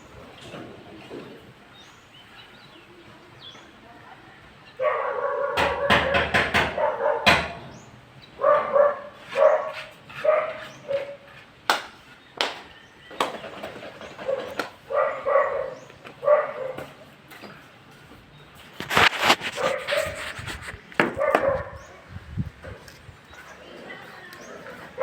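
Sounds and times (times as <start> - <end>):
dog barking: 4.8 - 7.5, 8.4 - 11.3, 14.2 - 16.9, 19.6 - 20.2, 21.1 - 21.9
sharp knocks: 5.6 - 7.7.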